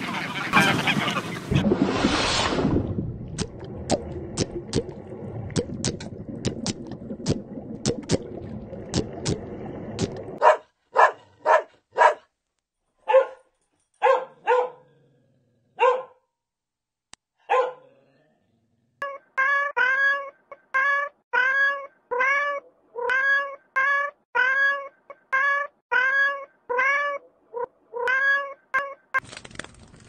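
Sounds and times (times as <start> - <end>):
small dog barking: 10.4 - 12.3, 13.0 - 14.8, 15.8 - 16.2, 17.5 - 17.9.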